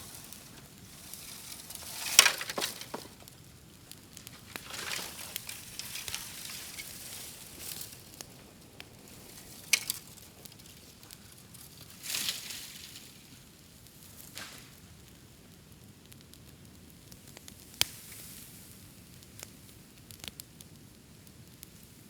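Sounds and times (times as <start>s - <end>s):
bamboo popping: 0.0s - 3.4s
bonfire crackling and hissing: 0.0s - 22.0s.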